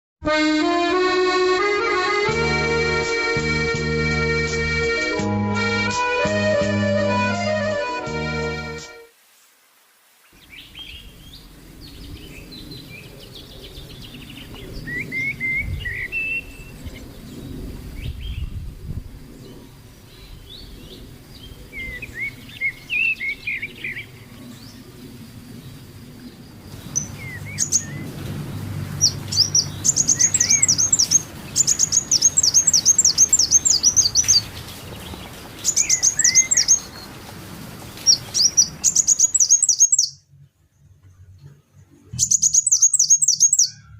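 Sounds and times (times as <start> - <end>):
birds chirping: 10.3 - 18.5, 19.3 - 43.9.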